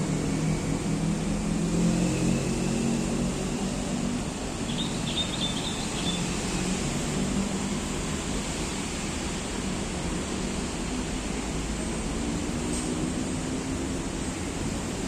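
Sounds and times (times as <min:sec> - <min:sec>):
road traffic hum: 0:00.0 - 0:15.0
bird chirping: 0:04.7 - 0:06.4.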